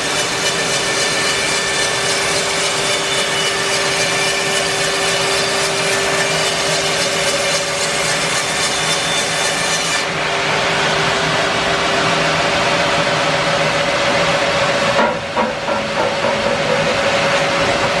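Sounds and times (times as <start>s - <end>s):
bandsaw sawing log: 0.0s - 10.2s
knocks: 15.0s - 17.1s.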